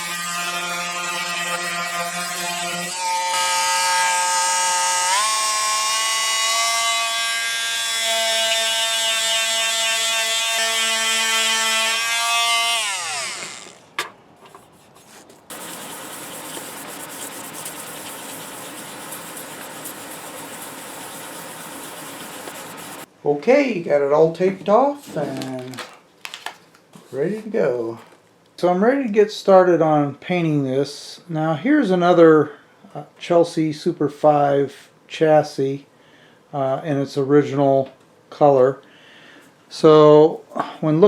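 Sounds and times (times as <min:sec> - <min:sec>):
power sander motor whine: 0:12.8 - 0:13.8.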